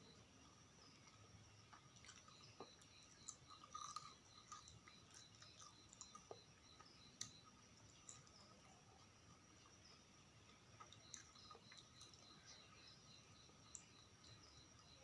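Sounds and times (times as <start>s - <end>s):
chewing and mouth sounds: 1.1s - 6.5s, 10.8s - 12.3s.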